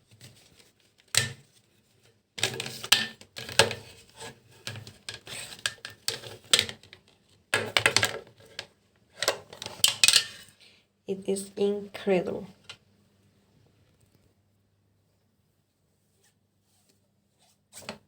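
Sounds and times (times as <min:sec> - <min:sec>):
plastic clatter: 0:02.4 - 0:10.5
plastic rubbing and scraping: 0:02.4 - 0:10.5.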